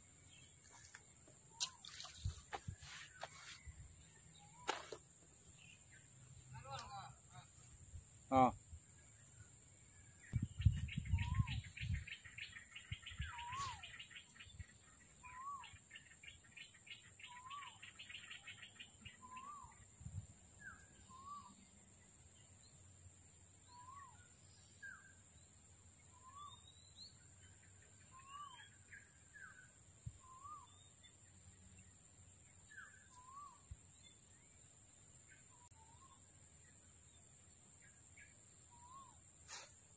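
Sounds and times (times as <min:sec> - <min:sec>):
bird call rising and falling: 0:13.1 - 0:14.1.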